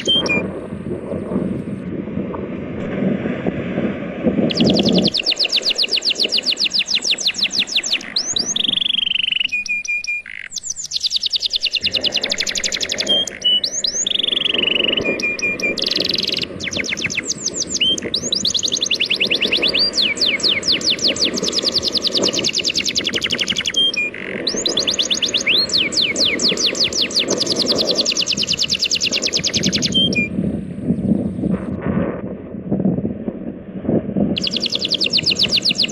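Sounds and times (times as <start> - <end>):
songbird trilling and whistling: 0.0 - 0.5, 4.5 - 30.3, 34.4 - 35.9.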